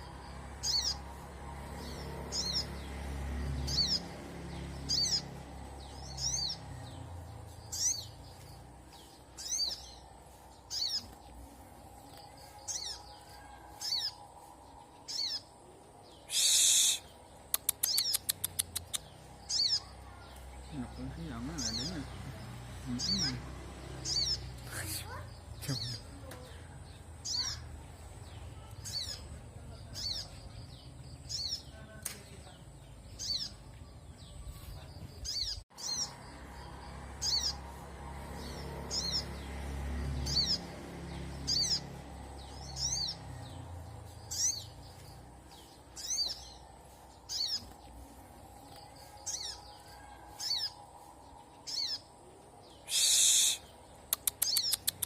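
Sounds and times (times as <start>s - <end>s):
faint low rumble: 0.0s - 16.2s.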